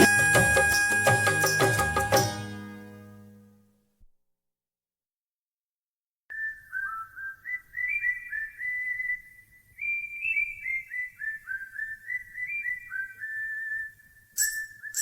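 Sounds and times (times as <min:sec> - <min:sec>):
whistled melody: 0:00.0 - 0:03.1, 0:06.3 - 0:15.0.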